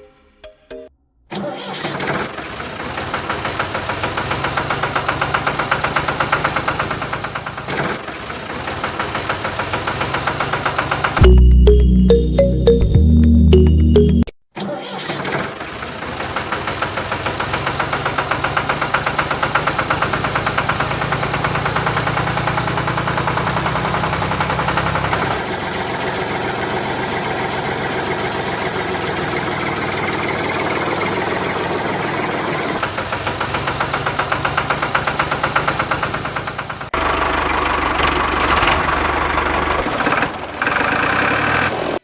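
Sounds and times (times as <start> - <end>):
small motor running with rattle: 2.1 - 11.2, 15.4 - 27.3, 32.0 - 42.0.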